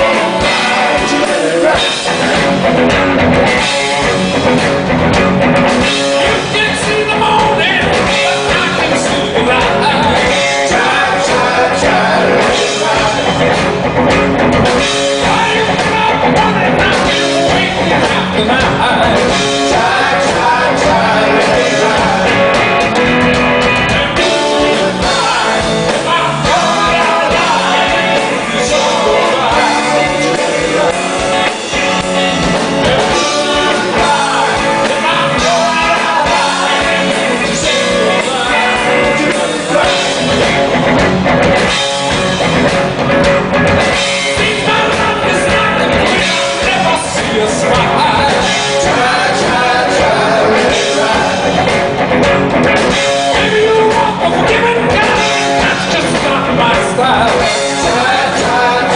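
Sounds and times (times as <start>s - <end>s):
person singing: 0.0s - 2.3s, 6.0s - 13.6s, 14.8s - 22.6s, 23.8s - 40.5s, 44.2s - 51.8s, 52.8s - 58.9s
drum kit: 0.0s - 58.9s
electric guitar: 0.0s - 58.9s.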